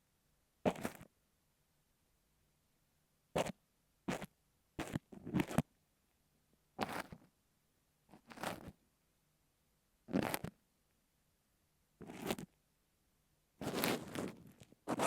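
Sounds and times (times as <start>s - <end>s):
gritty scraping on microphone: 6.8s - 7.2s, 8.2s - 8.8s, 10.1s - 10.6s, 12.0s - 12.5s, 13.6s - 15.0s.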